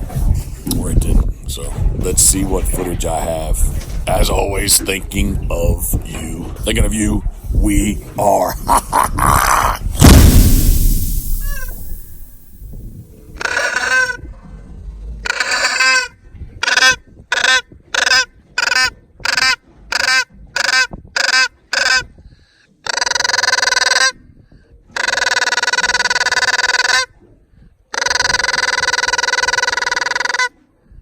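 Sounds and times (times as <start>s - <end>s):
goose honking: 13.4s - 14.2s, 15.2s - 22.1s, 27.9s - 30.5s.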